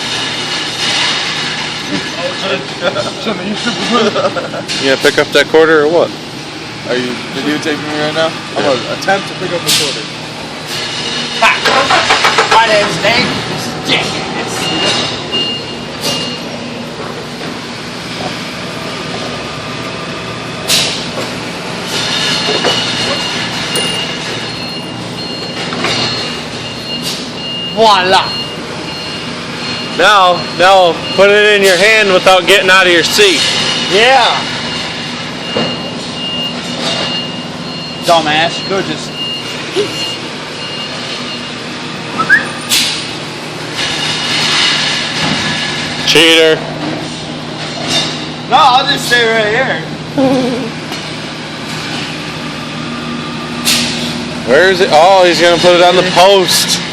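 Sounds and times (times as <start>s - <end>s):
forklift engine running: 0.0s - 48.5s, 49.8s - 56.9s
forklift engine hum: 5.6s - 31.3s
high-pitched warning beeper: 13.9s - 16.6s, 22.3s - 32.8s, 34.2s - 42.7s
short rising squeak: 42.1s - 42.9s.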